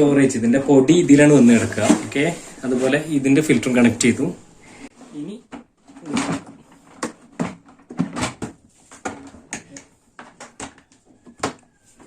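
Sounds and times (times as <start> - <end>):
plastic parts clicking and knocking: 5.5 - 11.7.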